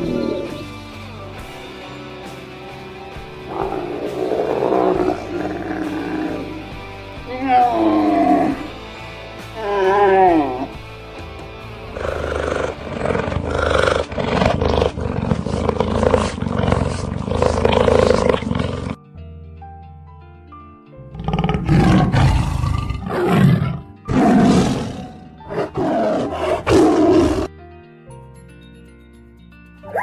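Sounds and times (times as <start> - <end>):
lion roaring: 0.0 - 0.6, 3.4 - 6.7, 7.3 - 8.7, 11.9 - 19.0, 21.1 - 27.5
children's background music: 28.1 - 30.0.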